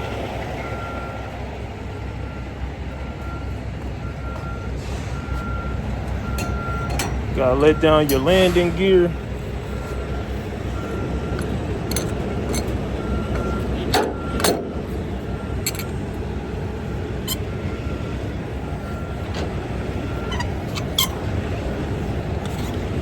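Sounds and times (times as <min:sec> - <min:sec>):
diesel engine idling: 0:00.0 - 0:23.0
landing gear clanking: 0:11.4 - 0:12.8, 0:15.6 - 0:16.0, 0:19.0 - 0:21.4.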